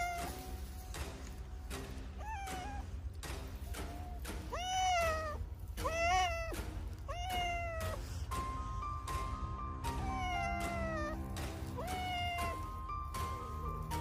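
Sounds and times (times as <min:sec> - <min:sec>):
cat meowing: 0:00.0 - 0:00.6, 0:02.1 - 0:03.1, 0:03.8 - 0:09.1, 0:09.8 - 0:14.0
background music: 0:00.0 - 0:14.0.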